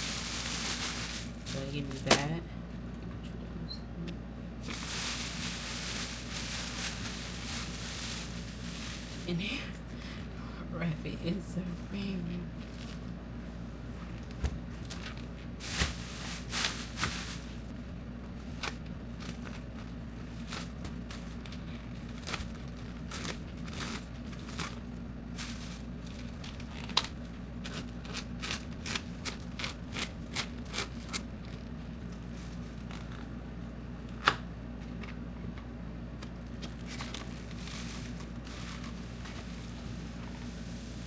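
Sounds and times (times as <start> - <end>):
plastic wrap crinkling: 0.0 - 2.3, 4.6 - 9.8, 14.0 - 17.8, 18.4 - 33.4, 36.4 - 41.0
steady low hum: 0.0 - 41.0.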